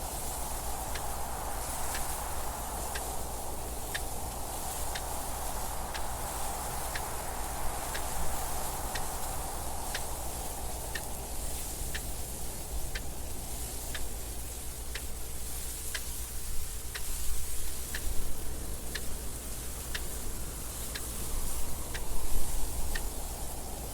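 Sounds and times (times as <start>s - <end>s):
rushing wind with low rumble: 0.0s - 23.9s
clock ticking: 8.8s - 16.3s, 16.9s - 20.2s.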